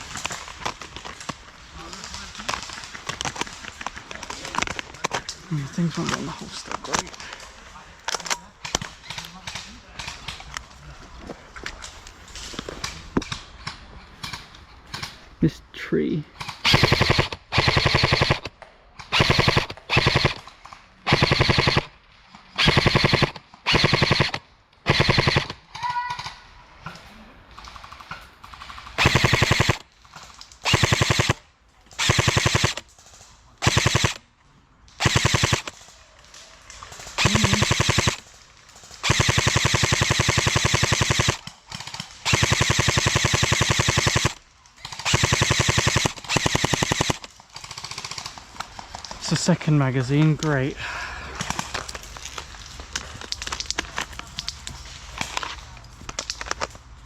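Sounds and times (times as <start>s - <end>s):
airsoft rifle firing bursts: 16.5s - 20.4s, 21.1s - 21.9s, 22.6s - 25.6s, 27.8s - 29.9s, 30.6s - 32.9s, 33.6s - 34.2s, 35.0s - 35.9s, 37.0s - 48.5s.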